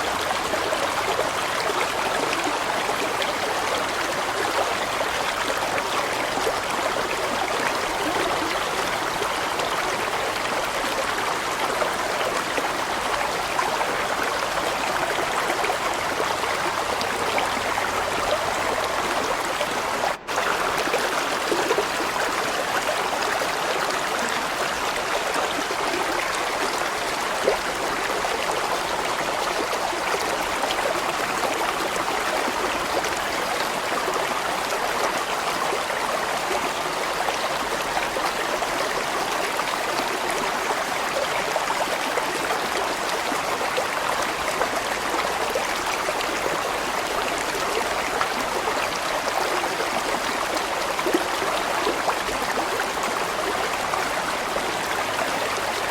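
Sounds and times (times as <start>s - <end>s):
stream rushing over rocks: 0.0s - 55.9s.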